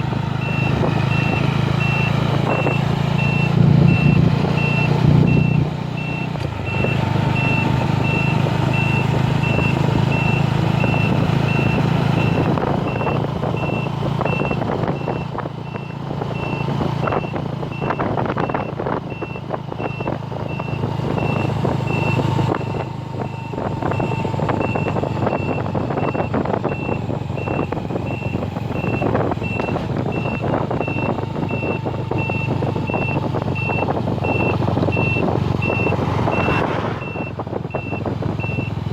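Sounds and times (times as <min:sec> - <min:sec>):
vehicle engine running: 0:00.0 - 0:38.9
electronic warning beeper: 0:00.4 - 0:22.2
rough rushing noise: 0:35.3 - 0:37.4.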